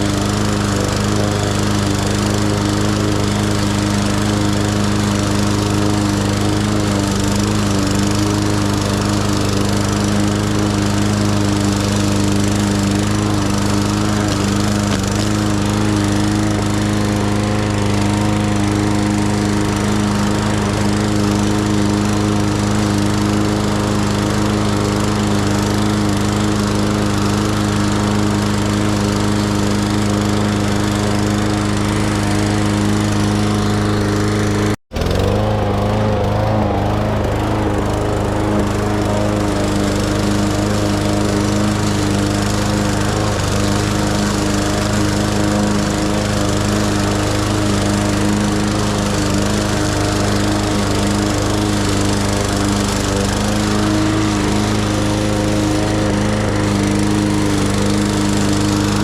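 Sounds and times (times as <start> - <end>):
lawn mower engine running: 0.0 - 59.0.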